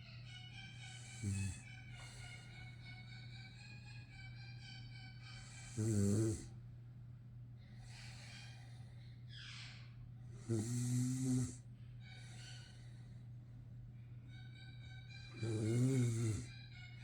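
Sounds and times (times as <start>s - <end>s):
dog snoring: 1.0s - 1.6s, 5.4s - 6.6s, 10.3s - 11.6s, 15.3s - 16.5s.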